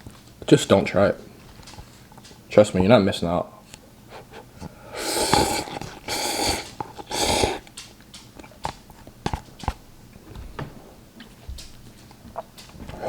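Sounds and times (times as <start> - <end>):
man panting: 4.1 - 7.6.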